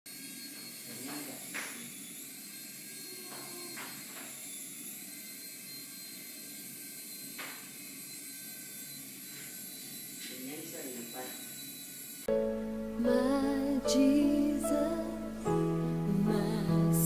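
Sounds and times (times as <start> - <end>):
toy helicopter rotor whirring: 0.1 - 12.3.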